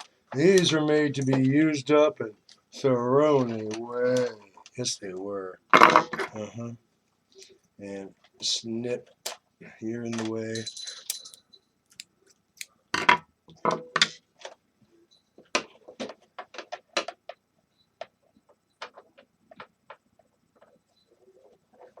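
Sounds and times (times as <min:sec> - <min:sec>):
hand tools clicking and knocking: 0:11.1 - 0:12.0.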